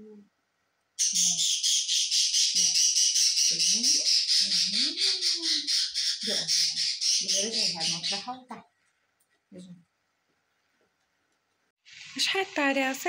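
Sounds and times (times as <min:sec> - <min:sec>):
pet birds chattering and squawking: 0:01.0 - 0:08.6.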